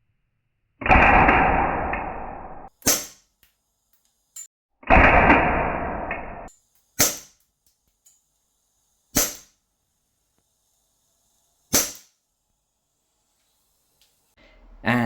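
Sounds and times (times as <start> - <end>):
airsoft pistol shots: 0.8 - 3.2, 7.0 - 7.3, 9.2 - 9.5, 11.7 - 12.1.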